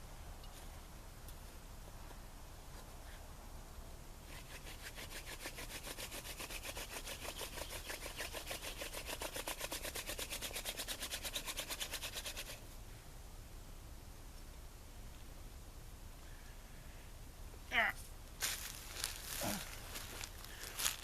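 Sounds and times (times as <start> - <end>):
wooden spindle rubbing on board: 4.3 - 12.6.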